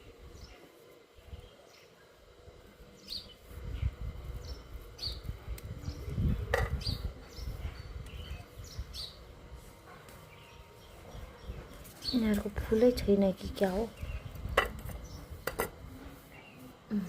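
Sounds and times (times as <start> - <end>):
small birds chirping: 0.0 - 17.0
low rumble on microphone: 3.3 - 9.6.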